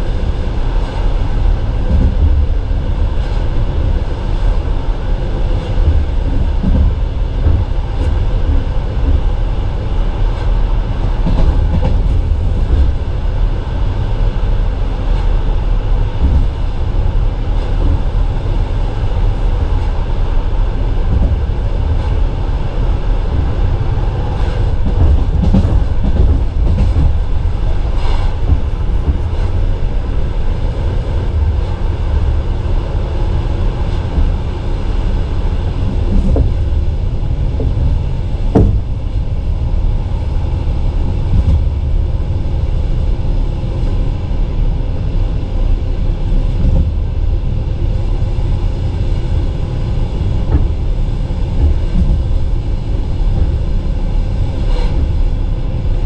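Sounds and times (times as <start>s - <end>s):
train wheels rumbling on track: 0.0s - 56.0s
sharp knocks: 37.6s - 39.1s.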